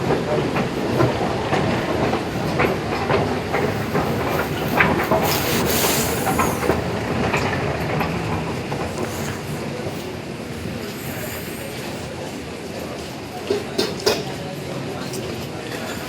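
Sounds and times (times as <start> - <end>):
train rumbling on track: 0.0 - 16.0
high hiss: 4.3 - 6.9.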